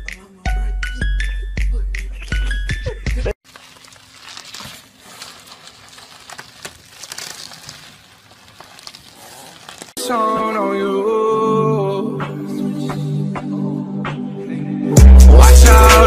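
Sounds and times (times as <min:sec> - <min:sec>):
bubble wrap crinkling: 0:03.4 - 0:10.0.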